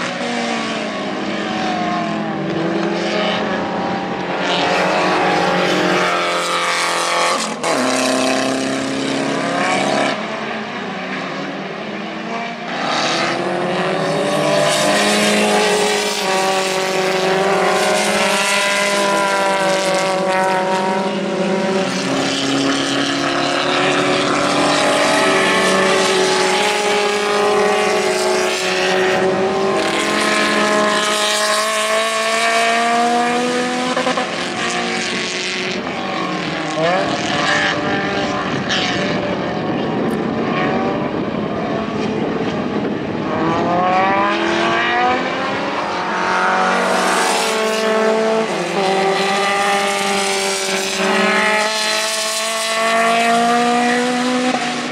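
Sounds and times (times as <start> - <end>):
race car engine running hard: 0.0 - 54.9.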